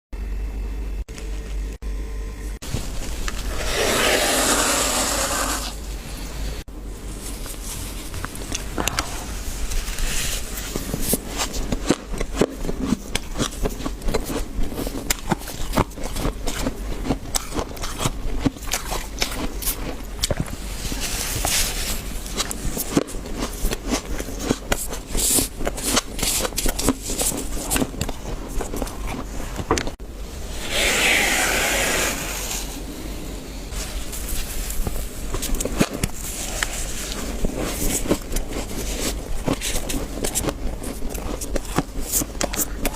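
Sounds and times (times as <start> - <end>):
frost scraping: 2.6 - 5.8, 30.5 - 42.8.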